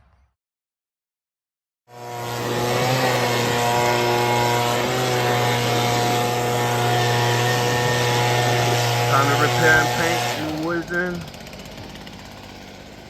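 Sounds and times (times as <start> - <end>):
machine motor running: 1.9 - 13.0.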